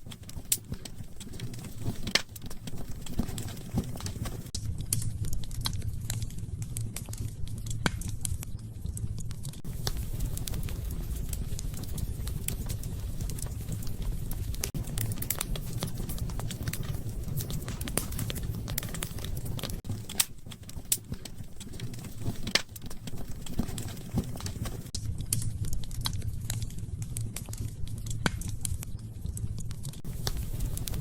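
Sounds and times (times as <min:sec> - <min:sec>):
low rumble of flames: 0:00.0 - 0:31.0
wood fire crackling and popping: 0:00.0 - 0:31.0.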